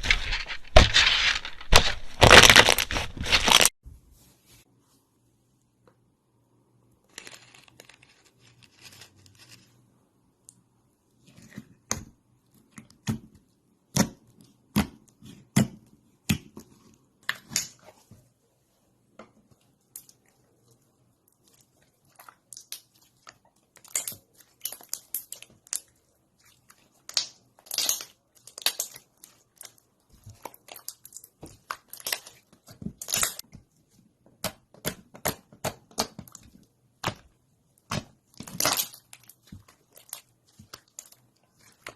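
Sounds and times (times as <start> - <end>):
slime crackling and popping: 22.1 - 33.4, 34.4 - 41.9.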